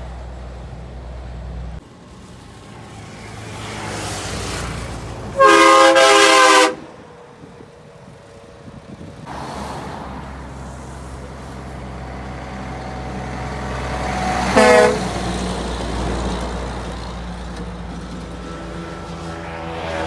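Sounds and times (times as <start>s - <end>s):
diesel truck engine: 0.0s - 20.0s
truck horn blast: 5.3s - 7.2s, 14.3s - 15.4s.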